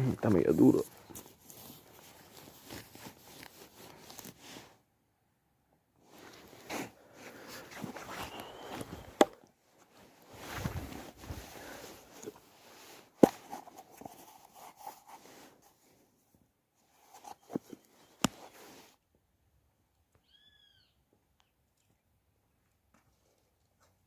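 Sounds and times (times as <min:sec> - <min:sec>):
digging tool scraping soil: 0:00.4 - 0:04.7, 0:06.1 - 0:09.3, 0:10.2 - 0:15.7
bird chirp: 0:08.2 - 0:09.1, 0:20.2 - 0:21.9.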